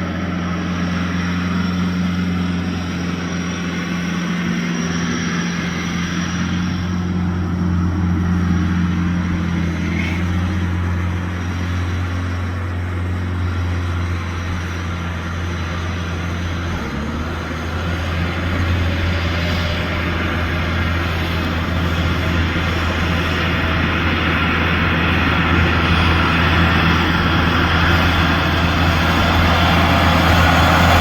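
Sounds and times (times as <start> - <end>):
diesel engine humming: 0.0 - 31.0.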